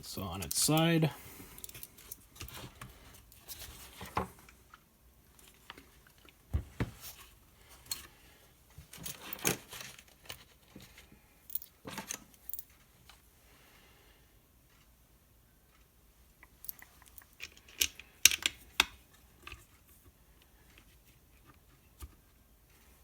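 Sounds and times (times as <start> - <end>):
metal parts and screws clattering: 8.9 - 10.6, 11.5 - 12.7, 16.6 - 18.6.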